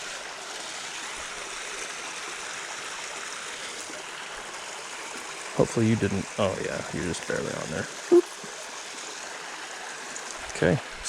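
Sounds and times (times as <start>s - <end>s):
creek water babbling: 0.0s - 11.0s.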